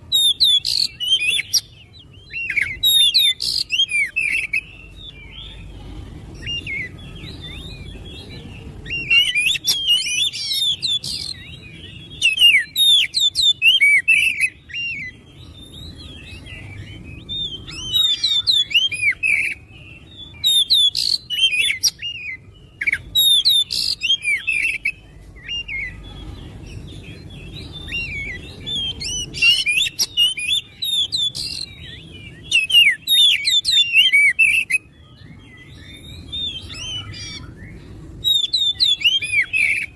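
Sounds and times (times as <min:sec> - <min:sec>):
bird singing whistled phrases: 0:00.1 - 0:05.7, 0:06.4 - 0:39.9
faint low hum: 0:03.4 - 0:12.7.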